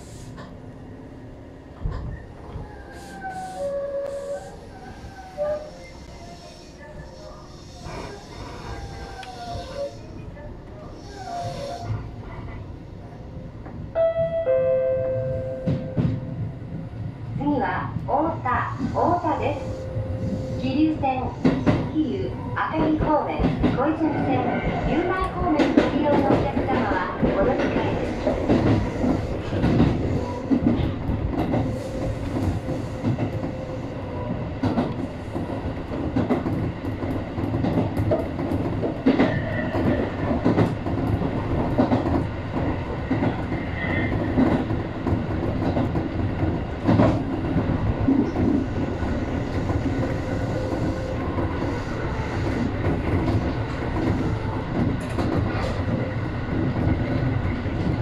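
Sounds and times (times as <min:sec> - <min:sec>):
rail joint clicks: 0:00.2 - 0:00.8, 0:01.7 - 0:06.2, 0:13.6 - 0:17.0, 0:17.8 - 0:58.0
wheels rumbling on rails: 0:15.0 - 0:58.0.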